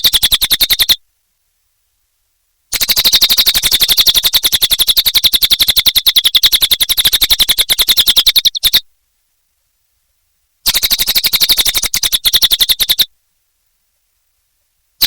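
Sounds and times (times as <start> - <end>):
bird singing fast trill: 0.0 - 1.0, 2.7 - 8.9, 10.7 - 13.1.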